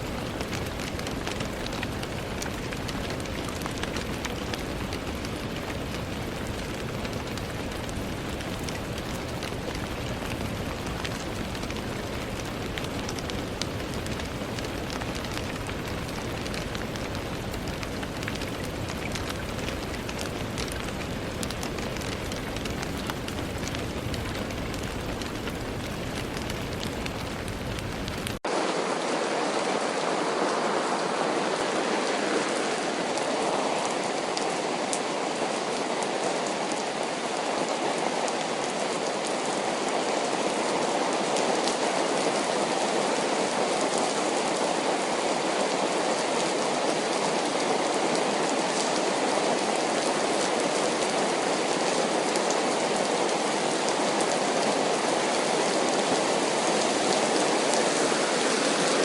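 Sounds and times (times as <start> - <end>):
raindrop ticks: 0.0 - 28.4
steady rainfall: 0.0 - 59.0.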